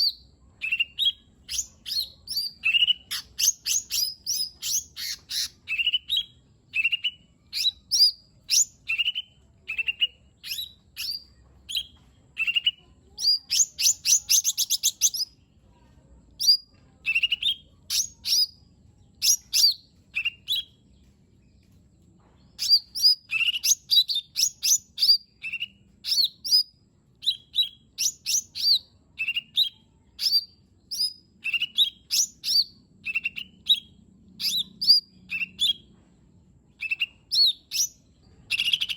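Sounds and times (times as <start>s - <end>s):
bird chirping and whistling: 0.0s - 15.3s, 16.4s - 18.6s, 19.2s - 20.7s, 22.6s - 35.8s, 36.8s - 38.9s.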